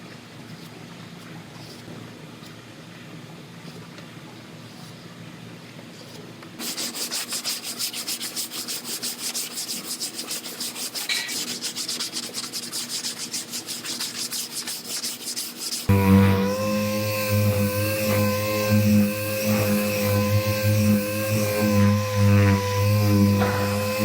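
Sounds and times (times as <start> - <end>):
sanding block rubbing: 6.1 - 24.0.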